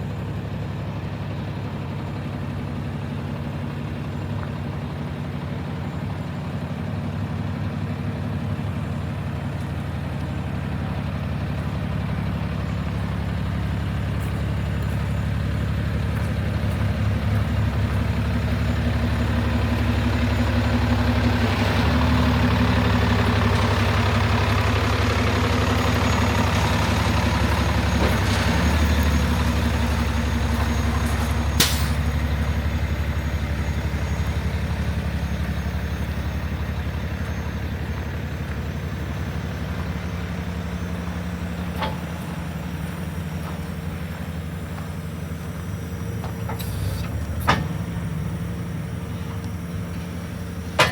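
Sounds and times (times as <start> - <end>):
diesel truck engine idling: 0.0 - 50.9
short sharp clicks or hisses: 31.6 - 32.0.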